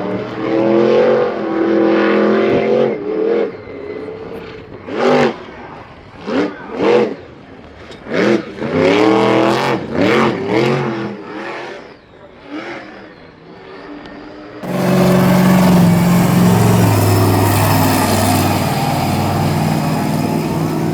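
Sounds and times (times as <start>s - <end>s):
engine revving in bursts: 14.6s - 20.9s
loud low engine: 14.6s - 20.9s.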